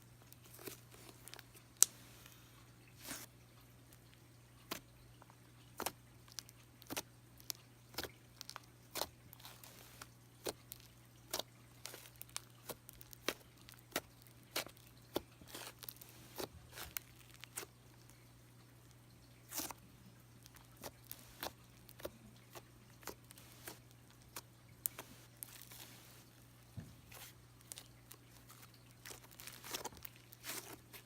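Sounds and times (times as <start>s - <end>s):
slime squished by hand: 5.8s - 17.8s, 20.4s - 26.4s, 27.0s - 31.0s.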